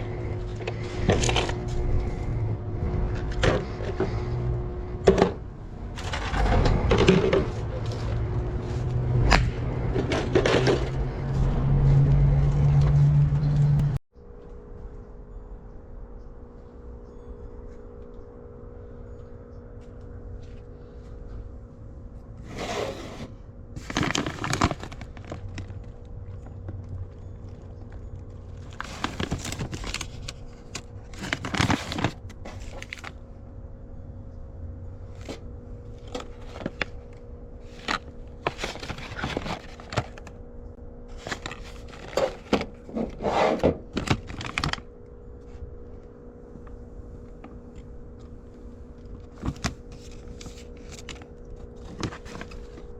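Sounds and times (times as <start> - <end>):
trash rustling and crinkling: 0.0 - 11.9, 22.4 - 33.2, 35.1 - 40.4, 41.1 - 44.9, 48.9 - 52.9
steady low hum: 0.0 - 52.9.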